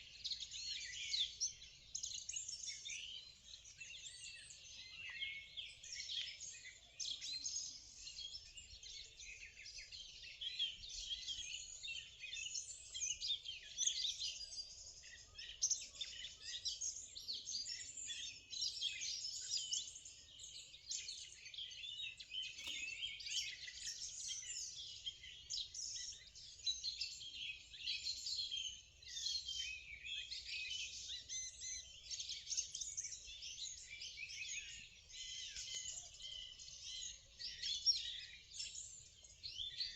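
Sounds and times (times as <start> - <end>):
small birds singing and chirping: 0.0 - 39.9.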